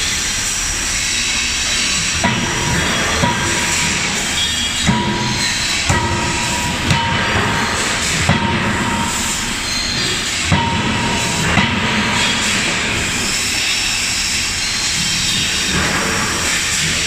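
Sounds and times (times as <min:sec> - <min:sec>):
steady mechanical noise: 0:00.0 - 0:17.0
forging hammer striking: 0:02.2 - 0:13.4.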